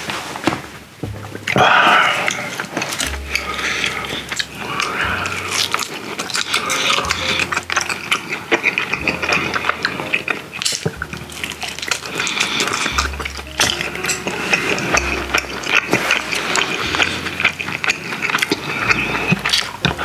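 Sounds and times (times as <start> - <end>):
chewing with lip smacks: 1.3 - 20.0.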